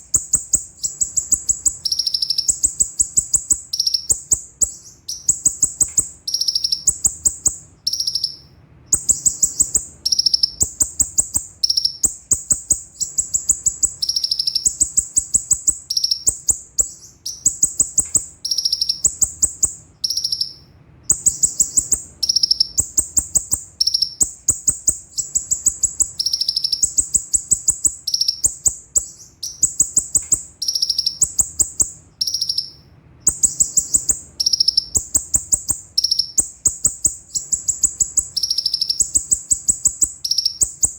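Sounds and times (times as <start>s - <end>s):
bird rattling trill: 0.0s - 8.4s, 9.0s - 32.7s, 33.3s - 40.9s.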